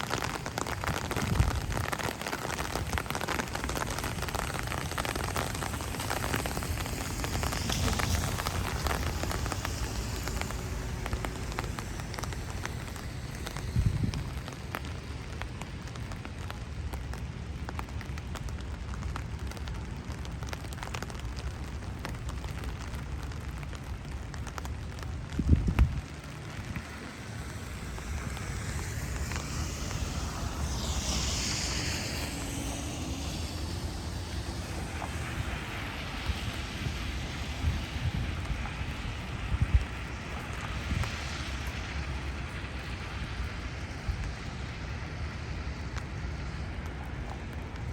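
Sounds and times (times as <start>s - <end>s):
wind blowing against microphone: 0.0s - 15.6s, 25.2s - 44.5s
low rain rumble: 0.0s - 47.9s
raindrops striking close by: 0.0s - 47.9s.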